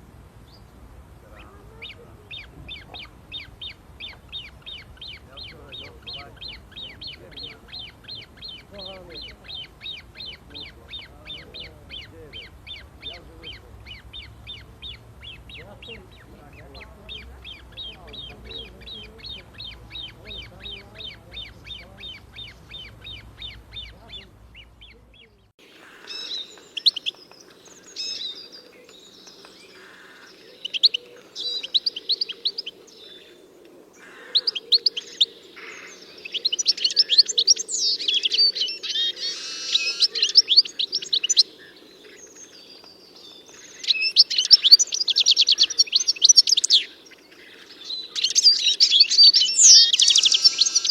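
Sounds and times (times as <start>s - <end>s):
birds singing: 0.0s - 50.9s.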